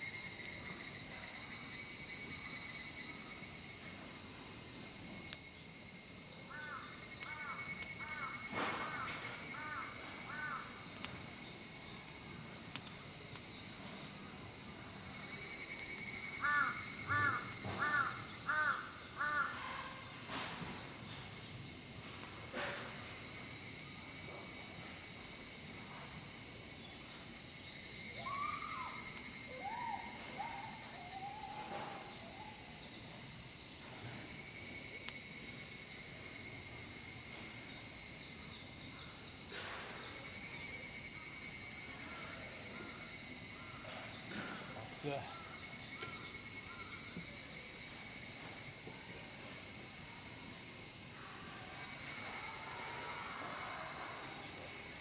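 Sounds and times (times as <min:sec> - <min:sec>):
crickets droning: 0:00.0 - 0:55.0
crows cawing: 0:06.5 - 0:10.8, 0:16.4 - 0:19.9.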